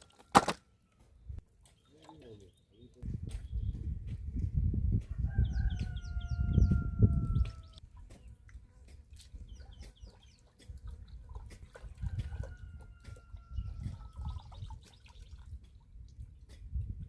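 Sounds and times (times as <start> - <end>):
small birds chirping: 1.0 - 4.4, 5.3 - 12.1, 13.2 - 16.7
rooster crowing: 5.1 - 7.8, 12.2 - 14.1.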